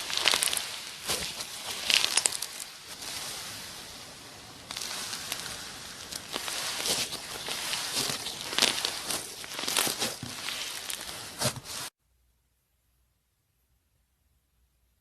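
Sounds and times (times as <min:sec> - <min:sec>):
slime squishing and crackling: 0:00.0 - 0:11.9.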